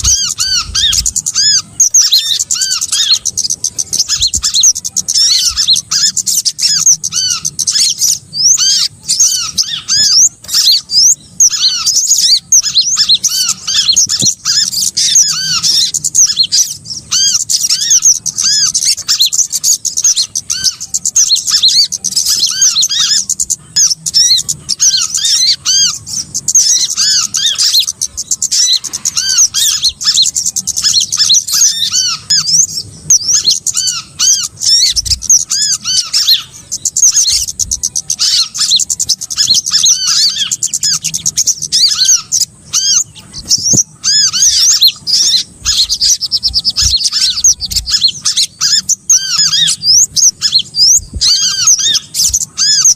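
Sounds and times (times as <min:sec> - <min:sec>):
songbirds chirping chorus: 0:00.0 - 0:52.9.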